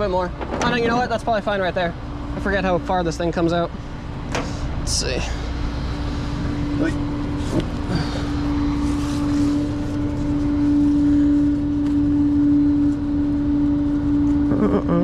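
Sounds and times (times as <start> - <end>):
low engine rumble: 0.0 - 15.0
hydraulic system whine: 1.9 - 14.7.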